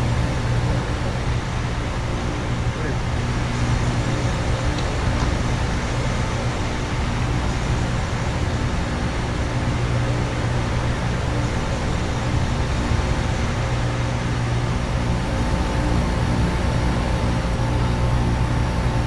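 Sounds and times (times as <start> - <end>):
compressors humming: 0.0 - 19.0.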